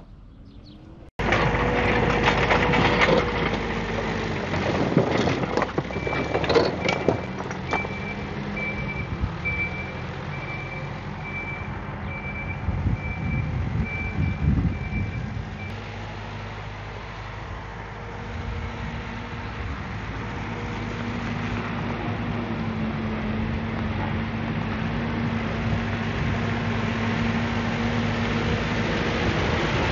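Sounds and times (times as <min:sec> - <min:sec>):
heavy diesel engine running: 0:00.0 - 0:29.9
reversing alarm beeping: 0:06.0 - 0:15.8.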